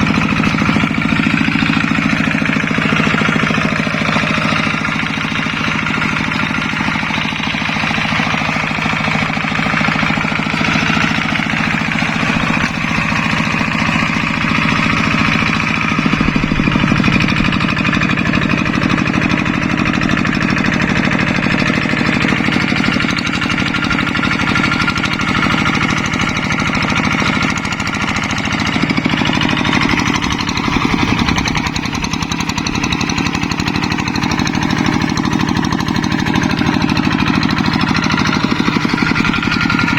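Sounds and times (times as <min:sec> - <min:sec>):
diesel engine knocking: 0:00.0 - 0:39.9.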